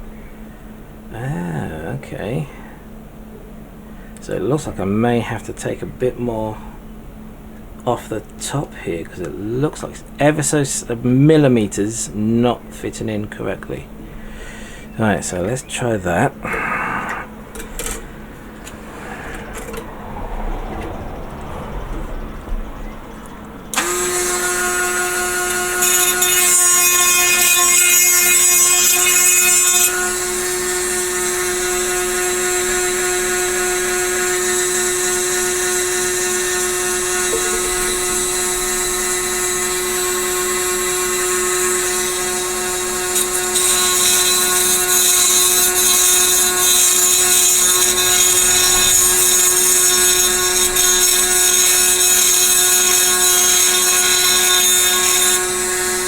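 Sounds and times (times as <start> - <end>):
rotary tool grinding plastic: 23.7 - 56.0.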